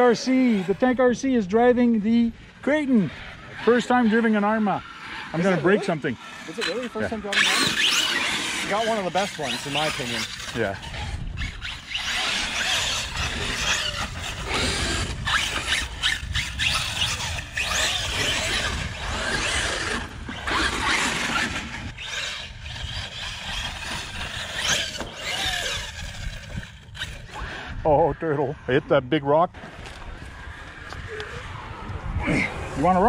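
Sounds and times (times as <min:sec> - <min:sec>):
electric motors whining: 0:00.0 - 0:33.0
wind rumble on microphone: 0:10.6 - 0:33.0.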